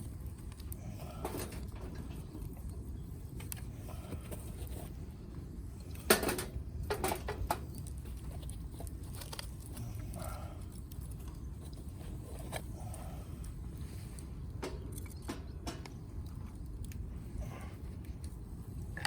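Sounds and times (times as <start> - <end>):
firewood popping and crackling: 0.0 - 19.0
low background noise: 0.0 - 19.0
wood fire burning: 0.0 - 19.0.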